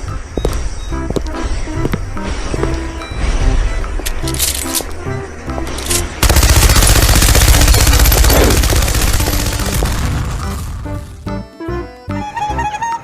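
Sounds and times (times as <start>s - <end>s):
light background music: 0.0s - 13.0s
rapid machine-gun fire: 6.2s - 10.7s.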